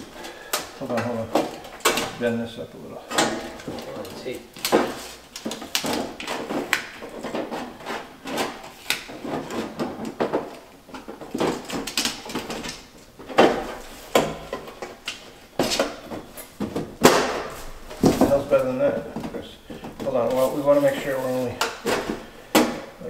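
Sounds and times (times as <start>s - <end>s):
wooden knocks and clacks: 3.1s - 20.5s.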